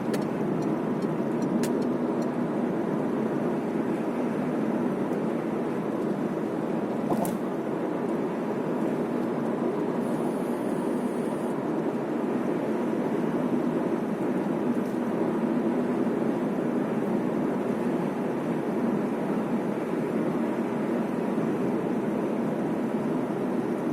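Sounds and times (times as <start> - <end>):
car engine running: 0.0 - 11.5
road and tyre noise in car: 0.0 - 23.9.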